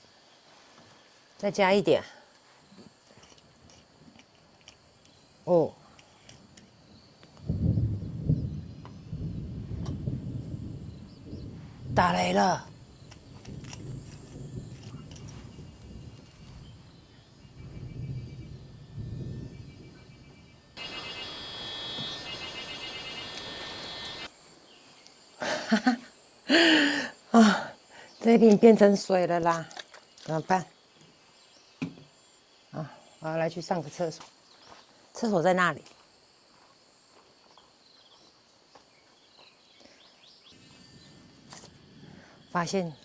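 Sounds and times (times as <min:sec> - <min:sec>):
insects buzzing: 0:02.3 - 0:43.0
distant thunder rumble: 0:07.5 - 0:16.8
bird chirps: 0:20.8 - 0:24.3
even hiss: 0:20.8 - 0:28.2.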